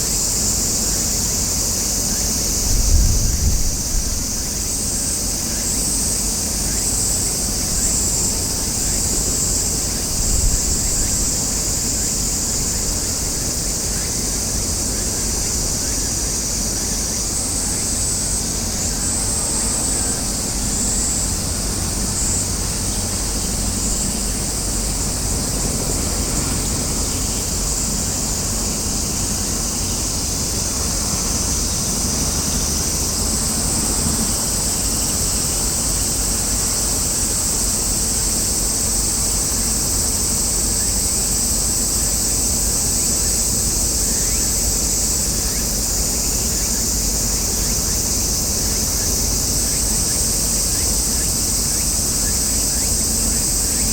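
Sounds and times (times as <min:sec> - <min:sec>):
wind rumbling on microphone: 0:02.3 - 0:05.2, 0:07.6 - 0:13.4.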